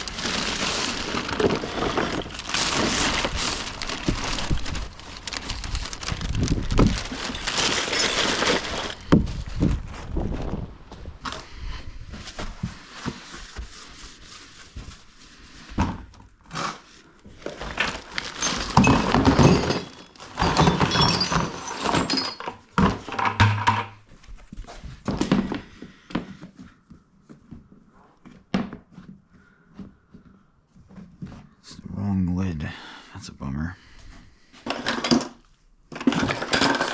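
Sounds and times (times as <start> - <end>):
items knocking and clattering: 0.0 - 10.6, 17.3 - 24.2, 24.8 - 25.7, 34.6 - 36.9.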